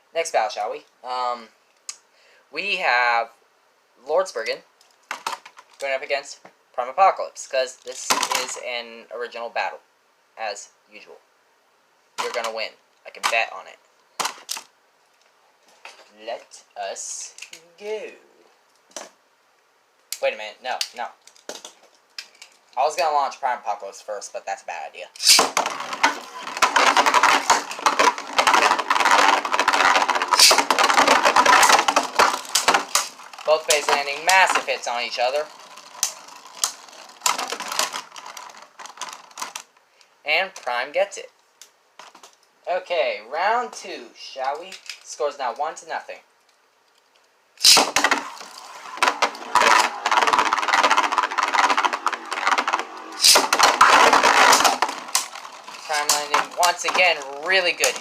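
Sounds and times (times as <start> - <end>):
spinning tops whirring and clashing: 25.2 - 38.1, 47.6 - 58.0.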